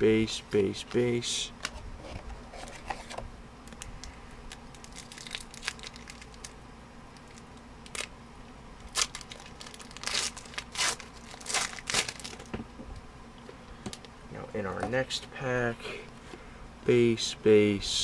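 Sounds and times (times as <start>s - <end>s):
wrapper crinkling and tearing: 3.7s - 6.6s, 7.2s - 8.1s, 8.8s - 12.5s.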